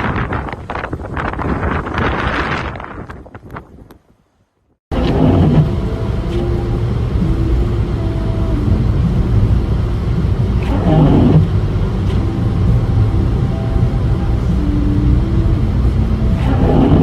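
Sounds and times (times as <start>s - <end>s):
vehicle engine rumble: 0.0s - 4.3s, 4.9s - 17.0s
faint humming tones: 5.0s - 17.0s.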